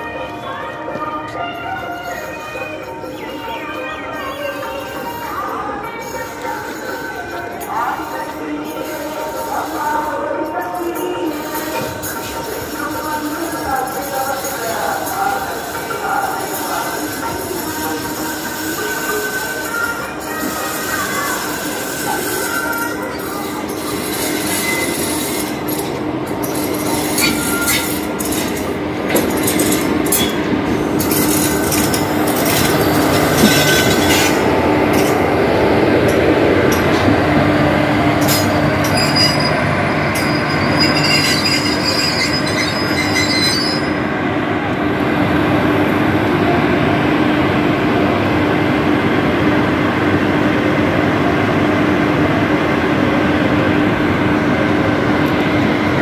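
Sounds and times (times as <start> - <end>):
train rumble and hum: 0.0 - 56.0
high wheel squeal: 18.0 - 25.6, 26.4 - 28.6, 38.3 - 44.0
wheels clicking over rail joints: 25.7 - 35.3.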